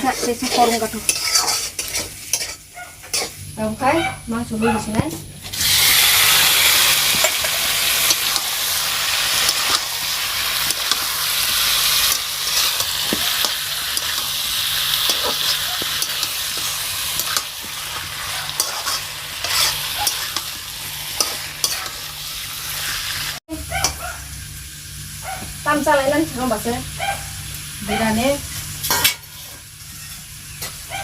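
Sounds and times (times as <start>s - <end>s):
food sizzling in hot oil: 0.0s - 4.6s, 5.3s - 31.0s
spoon scraping and clicking: 0.3s - 3.4s, 12.0s - 14.3s, 18.4s - 20.6s.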